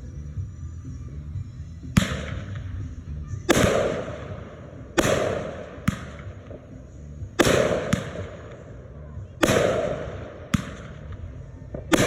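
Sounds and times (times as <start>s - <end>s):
firework bangs: 1.9s - 2.9s, 3.5s - 8.8s, 9.4s - 12.0s.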